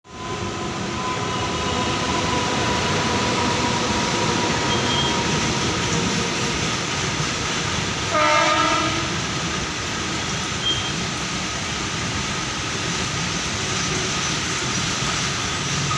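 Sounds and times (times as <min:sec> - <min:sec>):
train rumbling: 0:00.1 - 0:15.9
train horn blast: 0:08.1 - 0:09.3.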